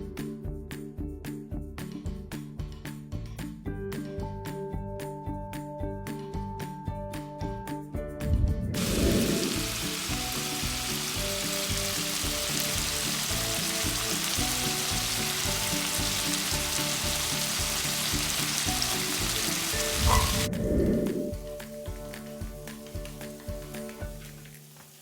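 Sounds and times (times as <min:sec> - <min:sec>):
quiet background music: 0:00.0 - 0:25.0
brief low rumble: 0:08.2 - 0:09.5, 0:20.1 - 0:21.4
food sizzling in a pan: 0:08.8 - 0:20.5, 0:21.2 - 0:25.0.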